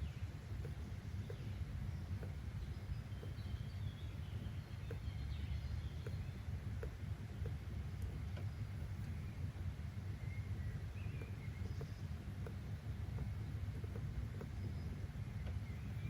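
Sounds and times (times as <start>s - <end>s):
faint bird chirps: 0.0s - 16.0s
faint ticking: 0.0s - 16.0s
low background rumble: 0.0s - 16.0s.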